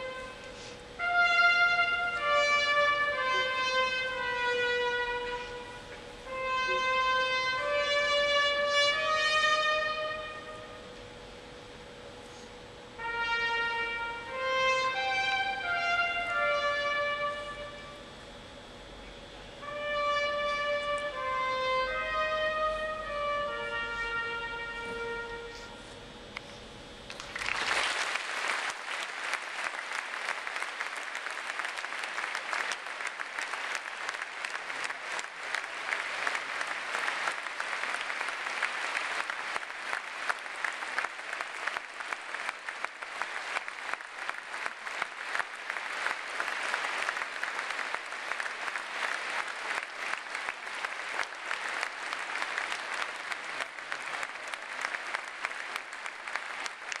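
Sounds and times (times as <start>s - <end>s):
audience applauding: 27.1s - 57.0s.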